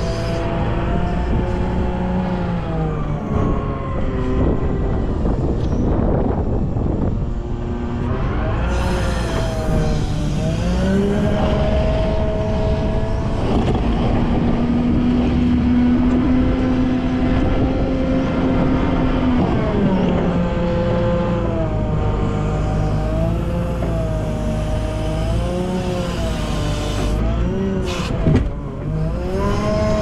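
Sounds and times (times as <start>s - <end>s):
wheel loader diesel engine revving: 7.6s - 30.0s.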